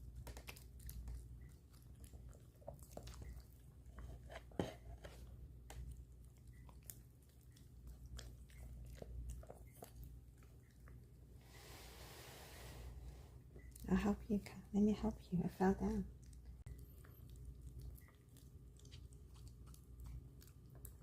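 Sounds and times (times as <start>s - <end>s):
dog chewing food: 0.0s - 11.4s, 16.1s - 21.0s.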